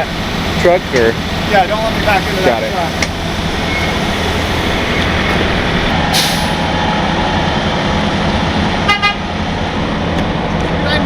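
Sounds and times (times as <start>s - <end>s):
diesel truck engine running: 0.0s - 11.0s
air brake hiss: 6.1s - 6.7s.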